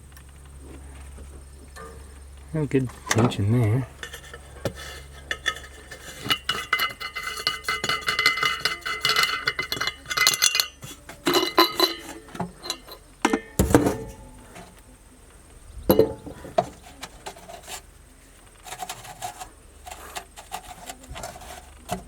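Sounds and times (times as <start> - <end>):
metal clinking and rattling: 1.7 - 14.8, 15.8 - 17.8.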